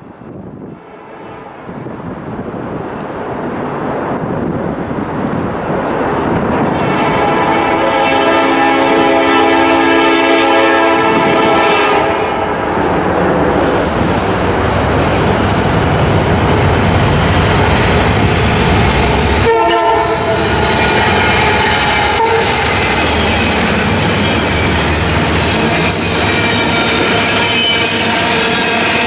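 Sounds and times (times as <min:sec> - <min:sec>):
train wheels on rails: 0:00.0 - 0:29.0
diesel locomotive horn: 0:06.7 - 0:12.6, 0:19.4 - 0:29.0
locomotive engines: 0:10.8 - 0:29.0.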